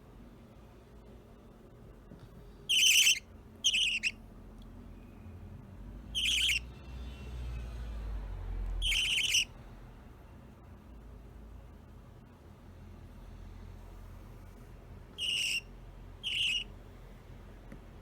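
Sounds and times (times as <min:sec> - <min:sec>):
budgerigar squawking: 0:02.7 - 0:04.2, 0:06.2 - 0:06.6, 0:08.8 - 0:09.5, 0:15.2 - 0:16.7.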